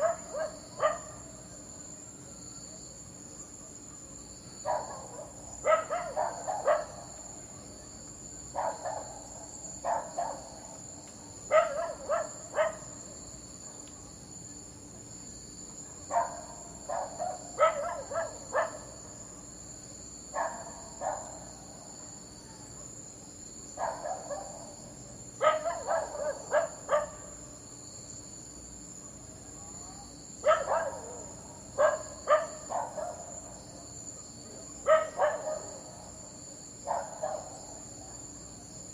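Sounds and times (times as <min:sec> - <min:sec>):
dog barking: 0:00.0 - 0:01.3, 0:03.6 - 0:07.2, 0:08.5 - 0:10.5, 0:11.5 - 0:13.0, 0:15.9 - 0:19.5, 0:20.3 - 0:23.0, 0:23.8 - 0:24.8, 0:25.4 - 0:27.4, 0:30.4 - 0:33.4, 0:34.6 - 0:36.1, 0:36.8 - 0:37.7
insects chirring: 0:00.0 - 0:38.9.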